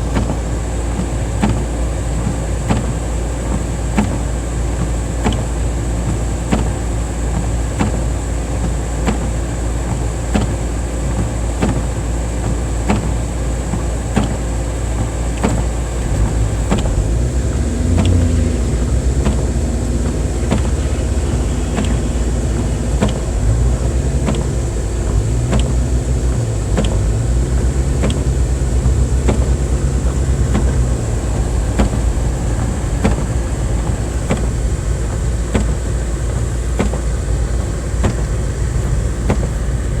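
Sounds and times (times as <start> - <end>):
car engine and road rumble: 0.0 - 40.0
low wavering hum: 15.1 - 40.0.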